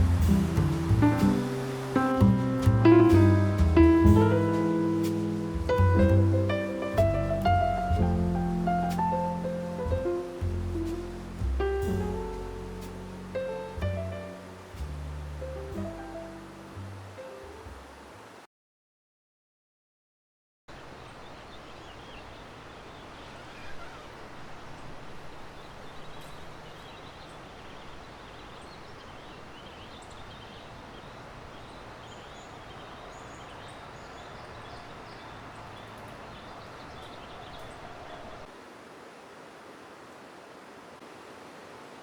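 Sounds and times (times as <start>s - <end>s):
river rushing: 0.0s - 18.5s, 20.7s - 42.0s
small birds chirping: 20.8s - 38.5s.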